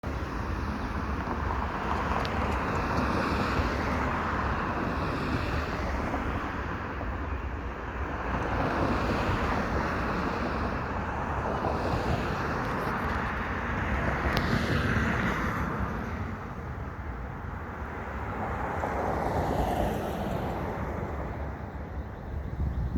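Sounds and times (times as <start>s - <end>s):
wind buffeting microphone: 8.3s - 22.9s.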